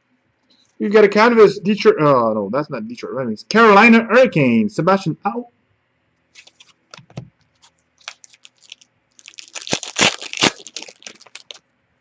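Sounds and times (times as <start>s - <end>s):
foil wrapper tearing and crinkling: 6.4s - 6.8s, 7.6s - 11.6s
cards being handled: 6.4s - 11.6s.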